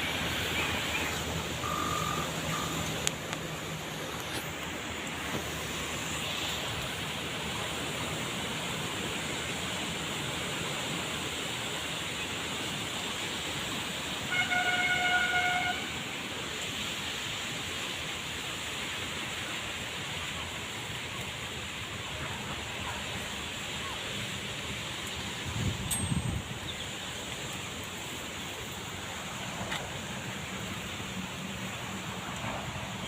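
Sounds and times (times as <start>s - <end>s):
steady rushing noise: 0.0s - 14.2s
horn blast: 14.3s - 16.0s.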